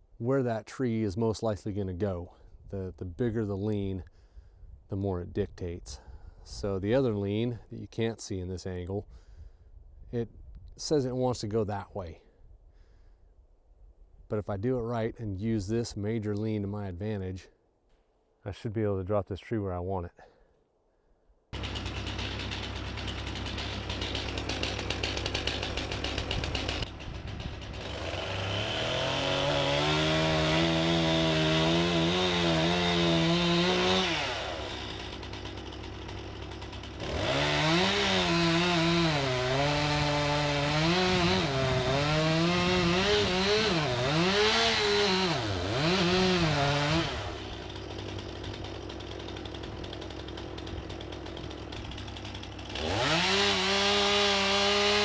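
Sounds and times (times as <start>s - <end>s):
chainsaw cutting tree trunk: 21.5s - 55.0s.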